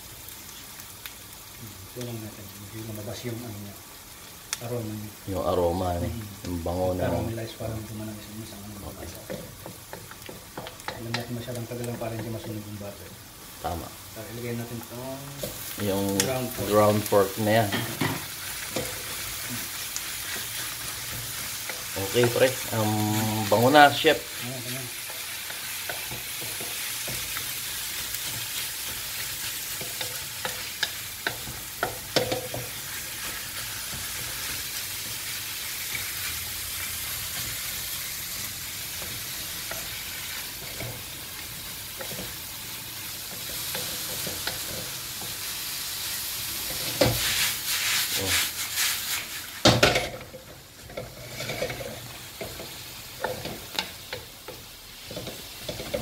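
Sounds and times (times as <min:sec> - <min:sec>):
meat sizzling in a wok: 0:00.0 - 0:56.0
wooden spatula scraping a pan: 0:14.4 - 0:54.2.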